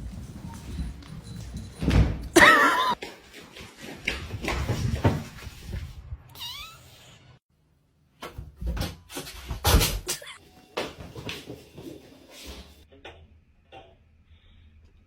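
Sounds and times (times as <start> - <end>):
cat meowing: 6.3 - 7.0.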